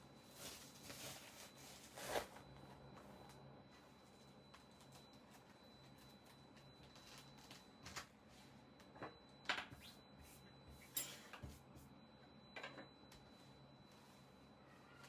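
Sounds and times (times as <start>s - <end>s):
handling scrapes and rustles: 0.3s - 2.4s.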